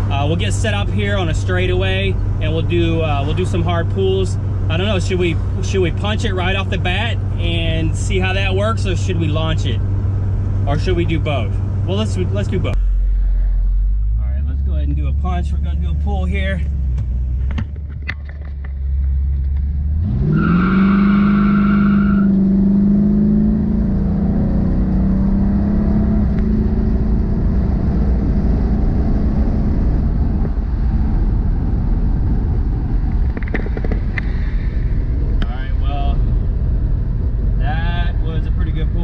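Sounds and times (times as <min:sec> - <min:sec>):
car engine revving at full throttle: 0:18.9 - 0:39.0.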